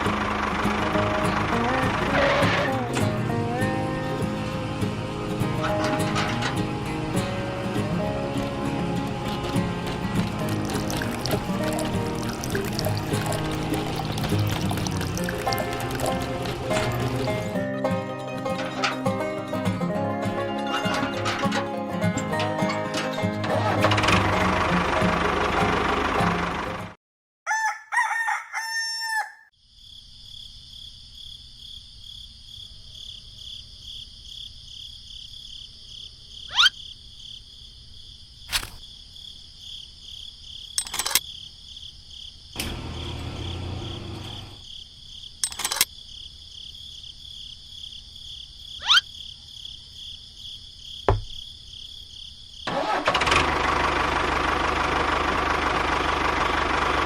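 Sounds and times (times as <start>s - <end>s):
crowing call: 27.5s - 29.5s, 36.5s - 36.8s, 48.8s - 49.1s.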